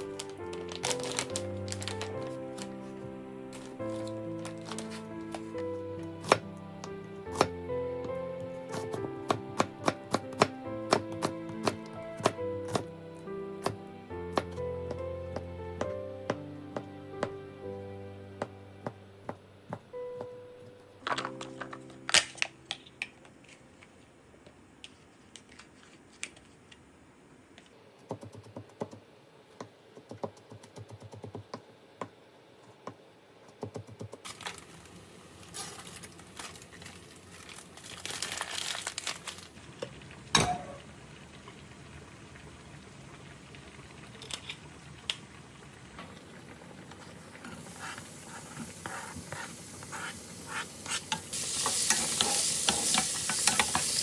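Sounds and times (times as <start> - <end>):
packaging crinkling: 0.0 - 6.4, 34.2 - 40.1
frying pan sizzling: 0.0 - 17.6, 34.3 - 54.0.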